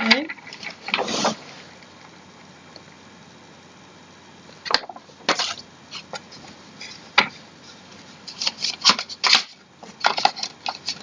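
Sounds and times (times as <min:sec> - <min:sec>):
chair parts knocking and clicking: 0:06.8 - 0:07.4, 0:08.3 - 0:11.0.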